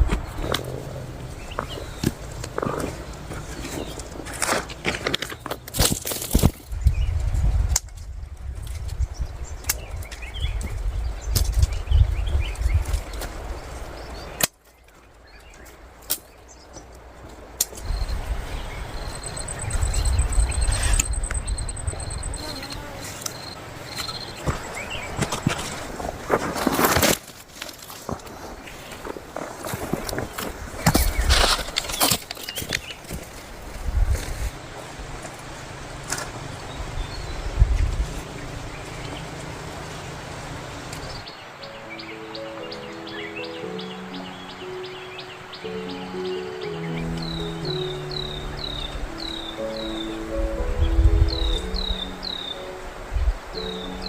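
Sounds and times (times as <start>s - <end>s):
soft melody: 17.0s - 24.6s, 41.0s - 54.0s
low rumble: 17.8s - 23.6s
insect trilling: 17.8s - 24.1s
short high chirps: 19.0s - 23.6s.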